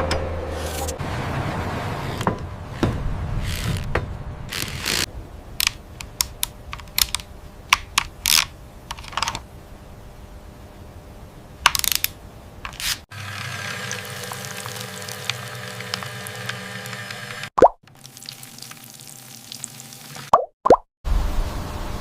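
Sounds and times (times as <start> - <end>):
sharp clicks: 5.6 - 8.5.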